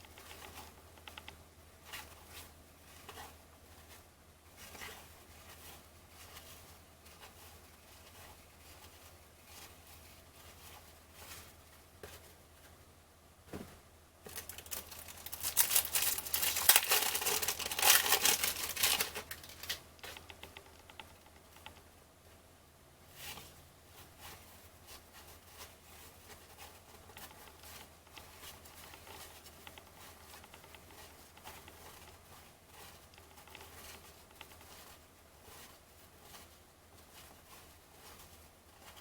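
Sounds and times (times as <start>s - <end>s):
quiet rustling: 0.0s - 39.0s
cellophane wrapper crinkling and tearing: 14.3s - 19.8s.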